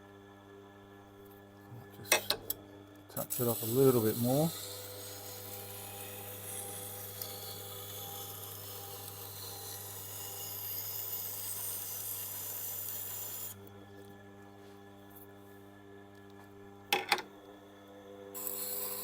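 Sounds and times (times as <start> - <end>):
grinder motor hum: 1.3 - 19.0
knife grinding on stone wheel: 3.2 - 13.6, 18.4 - 19.0.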